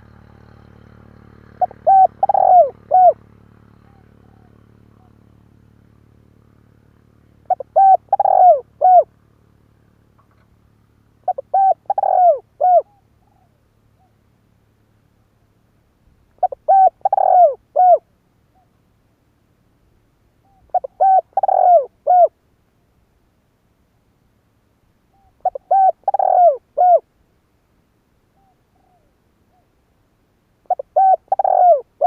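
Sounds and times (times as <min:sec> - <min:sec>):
dove cooing: 0:01.5 - 0:05.3, 0:07.4 - 0:09.1, 0:11.2 - 0:14.2, 0:16.4 - 0:18.8, 0:20.4 - 0:22.3, 0:25.1 - 0:27.1, 0:28.4 - 0:29.8, 0:30.6 - 0:32.0.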